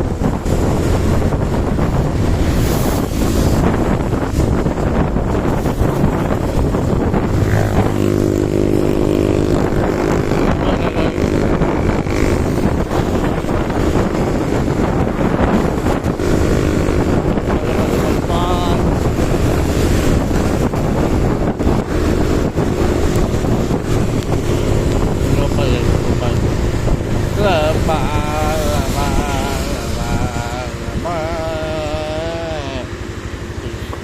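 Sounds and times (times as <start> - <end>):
wind buffeting microphone: 0.0 - 34.0
heavy rain: 23.0 - 33.3.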